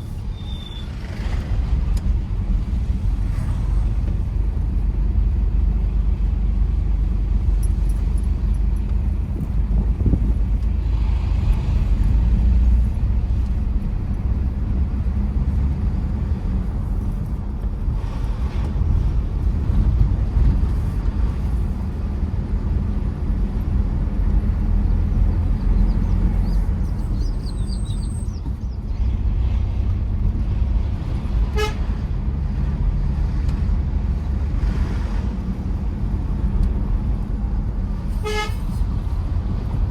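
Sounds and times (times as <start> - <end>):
car engine rumble: 0.0 - 39.9
tyres on road: 0.0 - 39.9
car horn toot: 31.5 - 31.8, 38.2 - 38.8.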